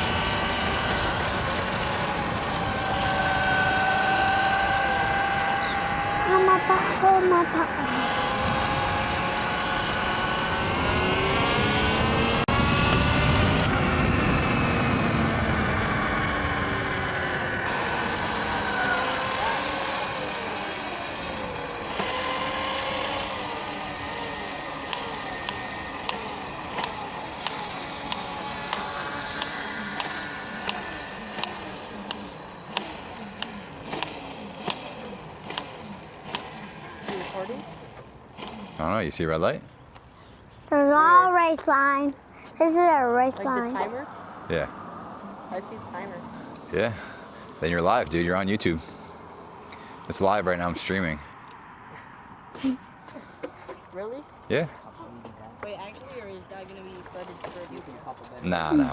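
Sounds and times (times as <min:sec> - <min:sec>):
electric dirt bike motor whine: 0:00.0 - 0:40.9, 0:55.6 - 0:58.9
sharp repeating tick: 0:24.9 - 0:36.6.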